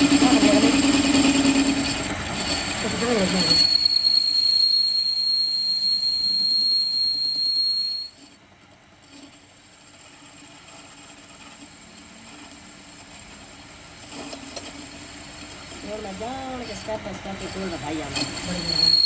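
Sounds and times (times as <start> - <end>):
high-pitched squeal: 0.0 - 8.2, 17.4 - 19.0.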